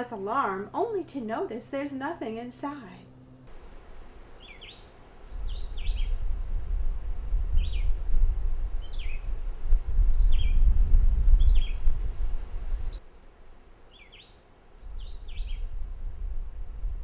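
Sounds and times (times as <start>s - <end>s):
bird chirping: 4.4s - 6.3s, 7.5s - 8.0s, 8.8s - 9.4s, 10.1s - 10.7s, 11.3s - 11.9s, 13.9s - 15.7s.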